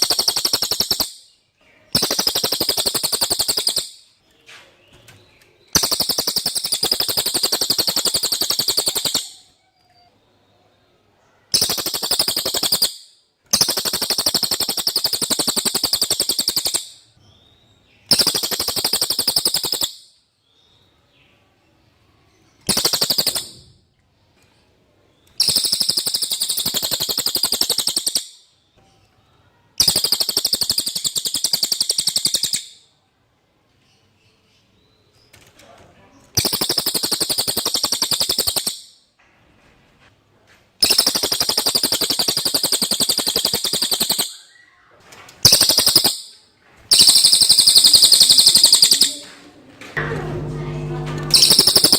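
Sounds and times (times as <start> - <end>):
bird singing rattling trills: 0.0 - 4.2, 4.9 - 9.5, 11.5 - 20.1, 22.6 - 23.7, 25.2 - 28.7, 29.8 - 32.9, 36.4 - 39.0, 40.8 - 44.8, 45.4 - 49.3, 51.3 - 51.9.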